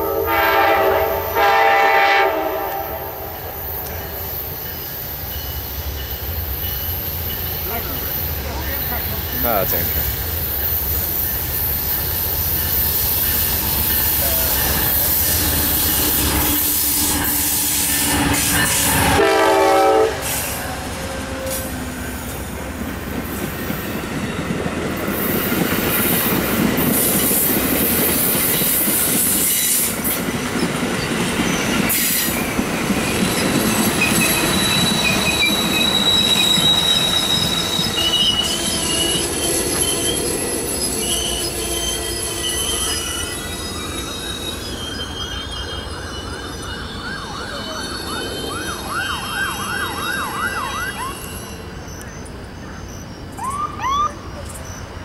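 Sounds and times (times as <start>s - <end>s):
train horn blast: 0.0s - 3.6s, 16.5s - 21.9s
train rumbling on rails: 0.0s - 55.0s
high wheel squeal: 3.6s - 19.3s, 25.2s - 55.0s.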